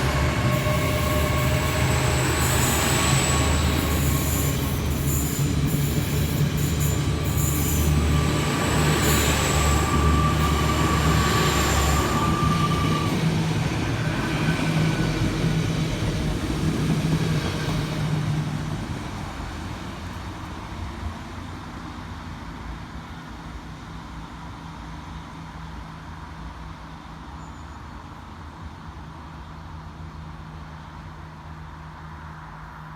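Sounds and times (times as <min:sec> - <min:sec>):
high wheel squeal: 0:00.0 - 0:16.3
train wheel noise: 0:00.0 - 0:21.5
train engine drone: 0:00.0 - 0:27.4.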